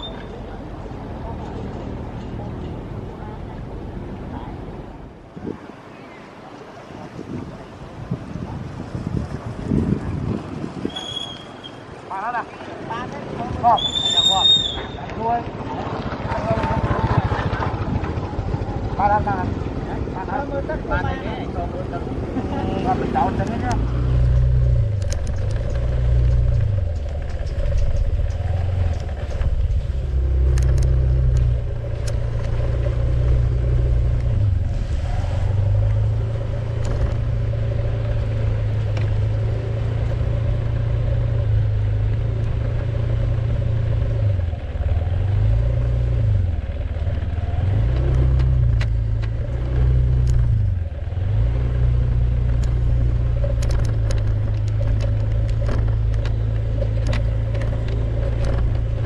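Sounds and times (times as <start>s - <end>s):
vehicle engine running: 15.4s - 59.0s
clicks and rattles: 24.2s - 29.8s, 52.4s - 59.0s.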